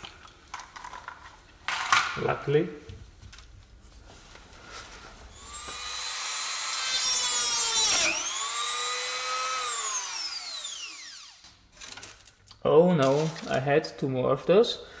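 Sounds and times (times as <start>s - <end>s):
rotary tool cutting metal whine: 5.4s - 11.4s.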